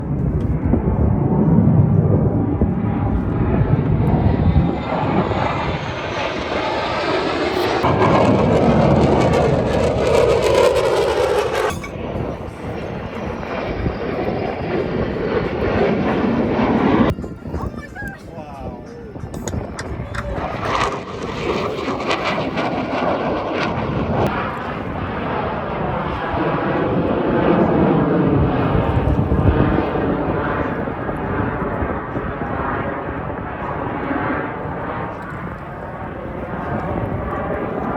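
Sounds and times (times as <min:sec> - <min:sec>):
airplane engine roar: 0:00.0 - 0:37.9.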